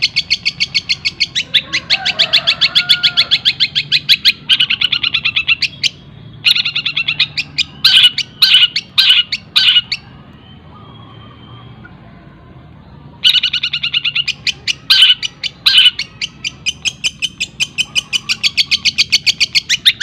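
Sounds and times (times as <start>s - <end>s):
shrike singing sharp repeated notes: 0.0s - 11.9s, 13.2s - 20.0s
harsh bird calls: 0.0s - 12.0s, 13.0s - 20.0s.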